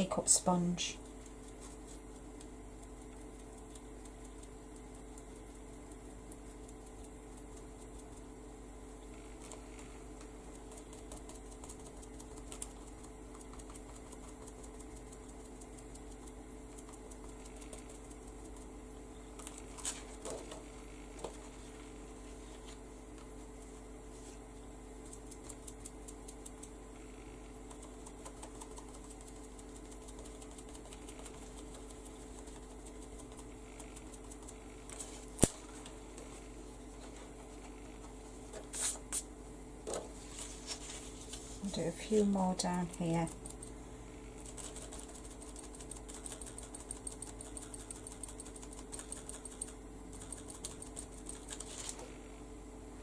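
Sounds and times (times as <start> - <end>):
steady electrical hum: 0.0 - 53.0.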